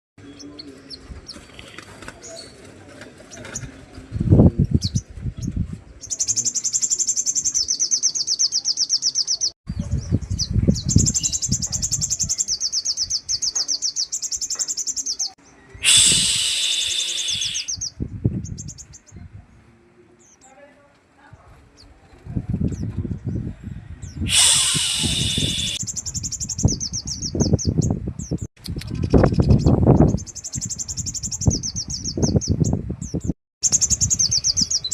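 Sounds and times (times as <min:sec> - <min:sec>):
bird rattling calls: 0:15.8 - 0:17.8, 0:24.3 - 0:26.5.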